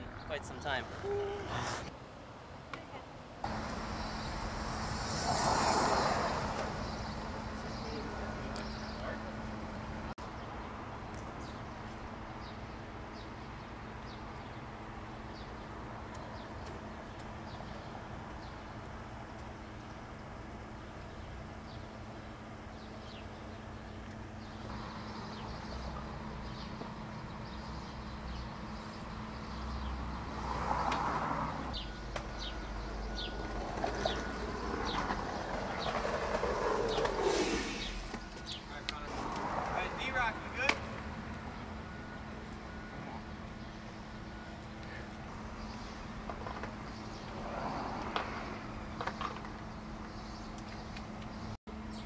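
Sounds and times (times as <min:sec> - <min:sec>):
small birds chirping: 0:06.8 - 0:09.4.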